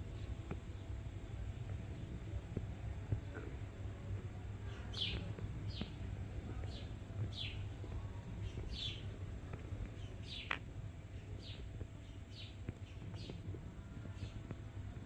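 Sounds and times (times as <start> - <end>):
steady low hum: 0.0 - 15.0
small bird chirping: 4.7 - 7.7, 8.4 - 9.2, 9.8 - 10.6, 11.4 - 14.6.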